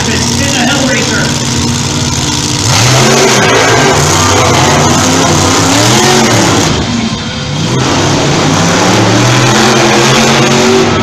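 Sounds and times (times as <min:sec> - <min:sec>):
monster truck engines revving: 0:00.0 - 0:11.0.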